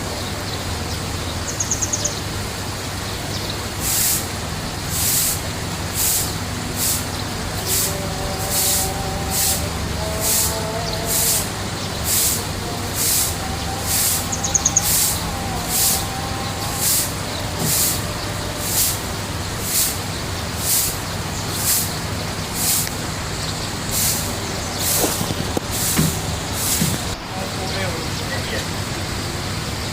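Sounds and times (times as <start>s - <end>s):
bird trill: 1.5s - 2.2s, 13.6s - 18.8s
hissing swell: 3.8s - 28.1s
low hum: 5.3s - 27.7s.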